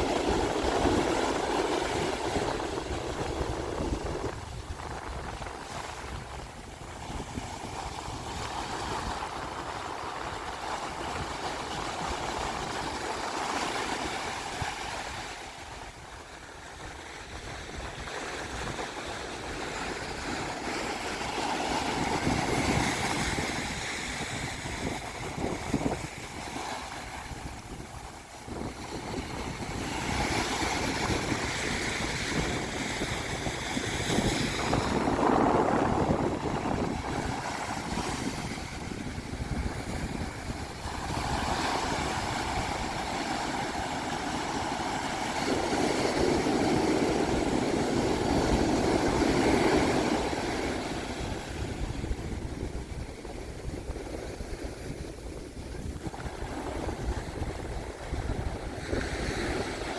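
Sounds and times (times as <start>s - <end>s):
ocean surf on sandy beach: 0.0s - 59.9s
wind on microphone: 0.0s - 59.9s.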